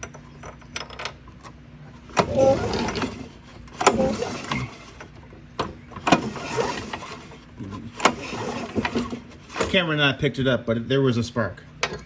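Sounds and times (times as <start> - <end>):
mower engine recoil starter pulls: 2.0 - 5.2, 6.0 - 9.8.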